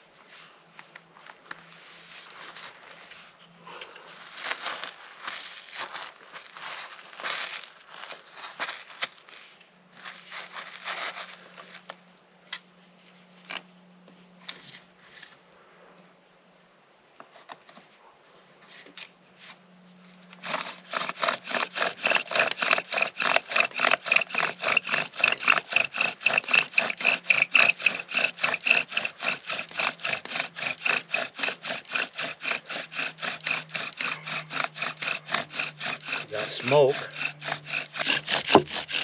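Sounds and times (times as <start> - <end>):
bow drill sawing and squeaking: 20.4 - 39.0.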